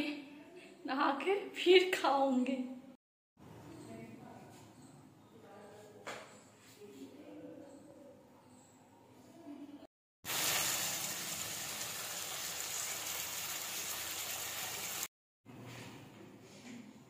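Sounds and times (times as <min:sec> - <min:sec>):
curry sizzling in a pan: 0:10.3 - 0:15.1.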